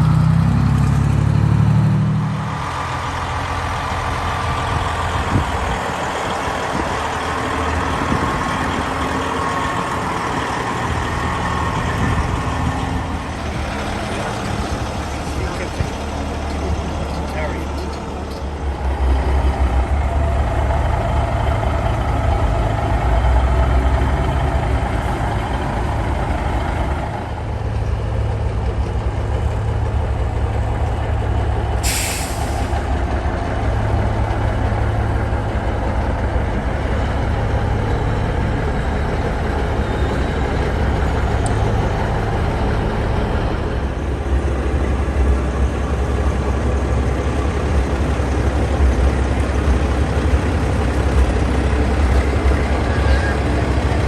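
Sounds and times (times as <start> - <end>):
diesel truck engine running: 0.0 - 54.0
air brake hiss: 31.8 - 32.8.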